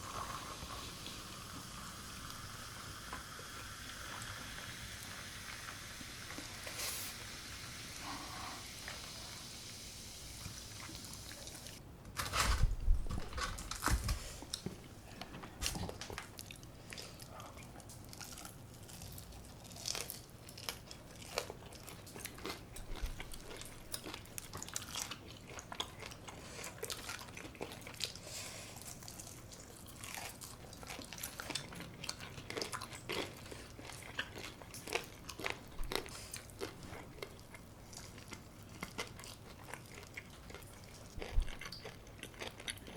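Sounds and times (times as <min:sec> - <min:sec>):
faint steady hiss: 0:00.0 - 0:42.7
chewing with small crunches: 0:14.4 - 0:42.9.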